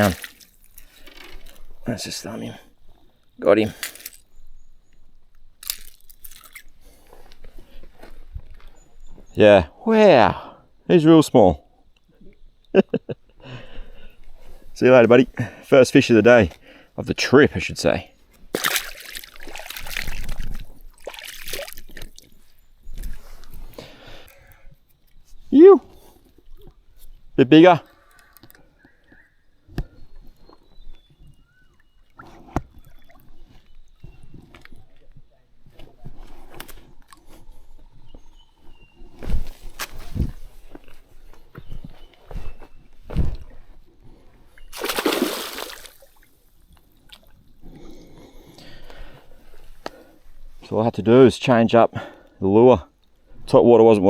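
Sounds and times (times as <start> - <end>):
loud water splash: 0.0 - 0.5, 18.6 - 21.8, 44.8 - 46.1
water splashing and trickling: 0.0 - 2.4, 3.5 - 4.4, 5.6 - 7.0, 18.5 - 22.4, 44.7 - 47.5.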